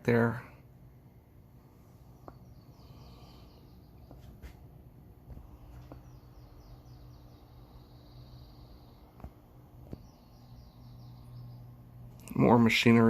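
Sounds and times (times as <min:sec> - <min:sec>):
low steady hum: 0:00.0 - 0:13.0
high chirps: 0:05.7 - 0:12.5.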